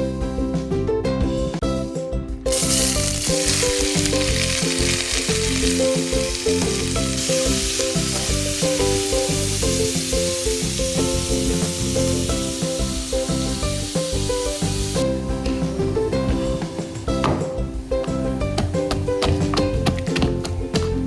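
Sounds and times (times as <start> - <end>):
light background music: 0.0 - 21.0
food sizzling in hot oil: 2.5 - 17.2.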